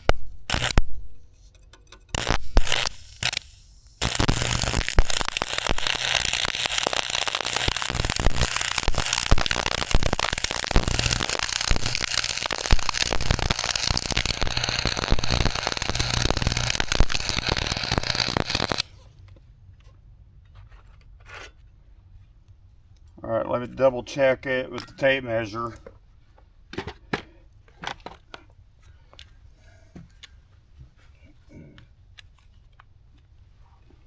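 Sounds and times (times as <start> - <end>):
arc welding crackle: 0.0 - 1.5, 2.1 - 19.0
low welder hum: 0.0 - 19.0.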